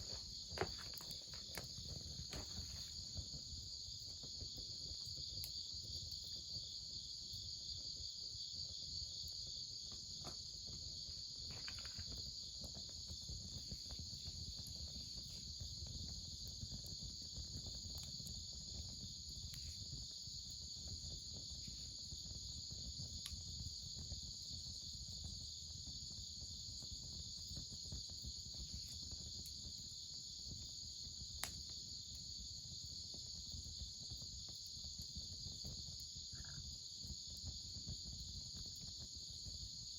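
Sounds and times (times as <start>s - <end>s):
small crackles: 0.0s - 5.5s, 9.9s - 22.1s
crickets chirping: 0.0s - 39.9s.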